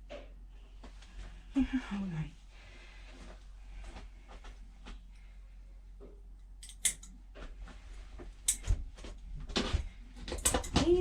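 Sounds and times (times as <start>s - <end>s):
scissors snipping fur: 6.6s - 7.1s.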